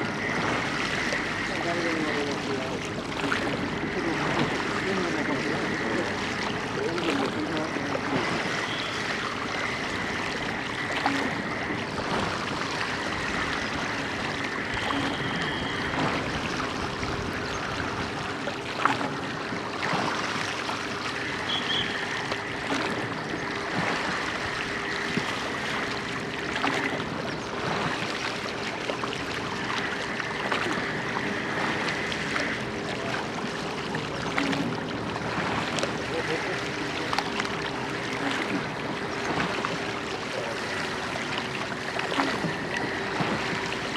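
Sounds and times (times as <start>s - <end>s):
high whine: 0.0s - 18.3s
faint oar strokes: 0.0s - 43.9s
steady hum: 0.0s - 43.9s
water rushing along boat hull: 0.0s - 43.9s.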